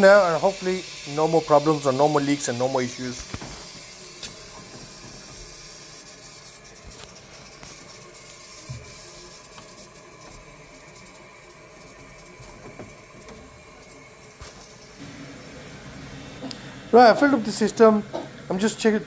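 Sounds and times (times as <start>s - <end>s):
water hissing through pipes: 0.0s - 19.0s.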